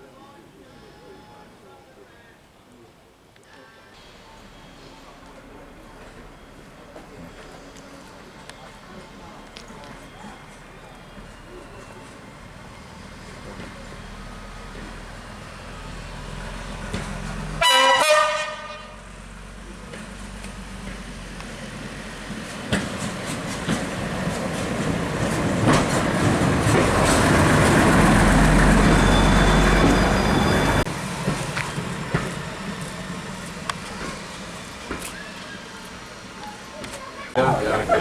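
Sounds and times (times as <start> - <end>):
railcar rumble: 3.5 - 38.0
railcar horn blast: 17.6 - 19.1.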